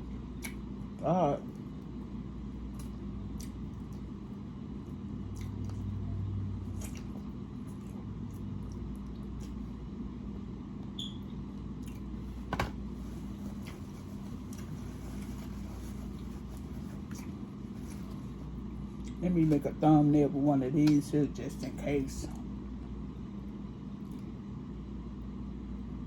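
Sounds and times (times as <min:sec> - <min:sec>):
chewing on ribs: 0:00.0 - 0:10.1, 0:11.5 - 0:12.3, 0:13.2 - 0:19.8.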